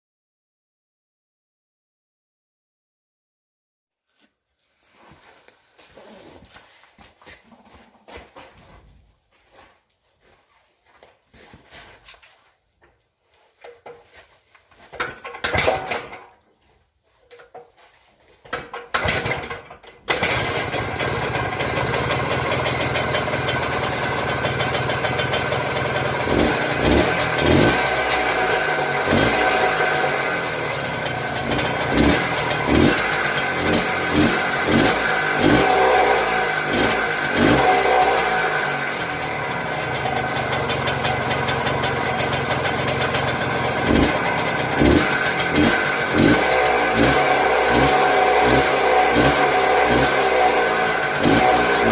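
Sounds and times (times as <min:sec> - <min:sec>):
motorcycle engine starting and revving: 0:14.8 - 0:16.4, 0:18.4 - 0:51.9.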